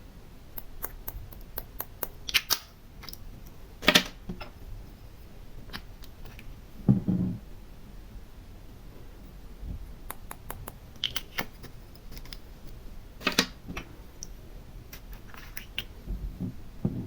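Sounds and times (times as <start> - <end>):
small hard objects clicking: 0.6 - 3.2.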